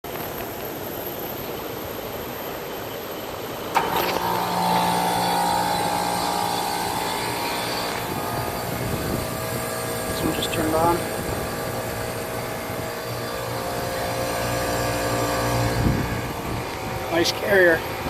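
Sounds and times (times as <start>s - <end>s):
steady background whir: 0.1s - 18.0s
compressor humming: 3.7s - 18.0s
heat pump switch clack: 3.8s - 16.5s.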